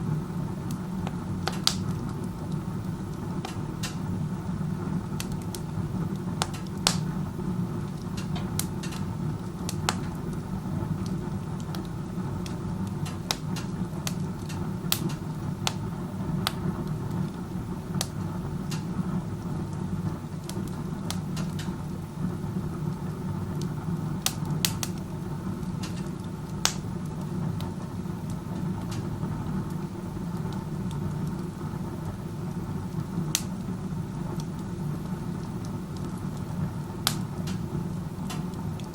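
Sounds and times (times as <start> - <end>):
stove draft low roar: 0.0 - 38.9
wood crackling and popping: 0.0 - 38.9.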